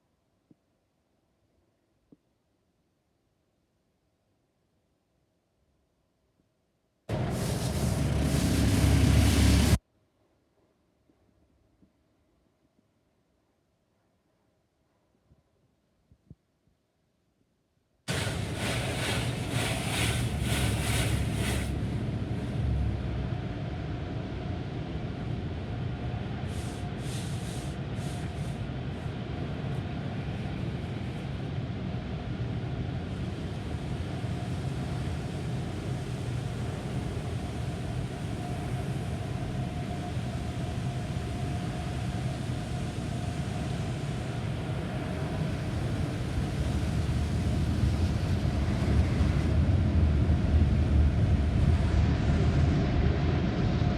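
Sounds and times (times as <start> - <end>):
car wash equipment rumble: 7.1 - 9.8, 18.1 - 53.9
water spraying hiss: 7.1 - 9.8, 18.1 - 22.1, 26.5 - 28.6, 33.2 - 49.3.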